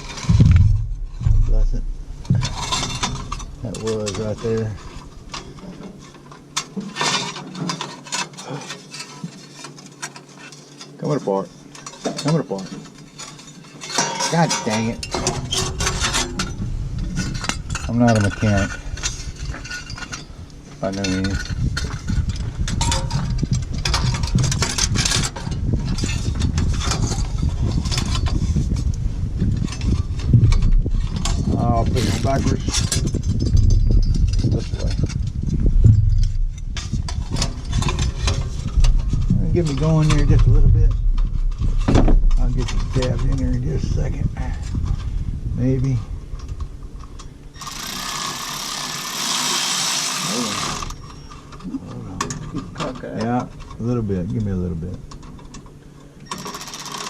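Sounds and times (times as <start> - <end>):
steady low rumble: 0.0 - 6.6, 14.6 - 47.5
sheet metal clinking and scraping: 0.0 - 28.9, 29.5 - 45.0.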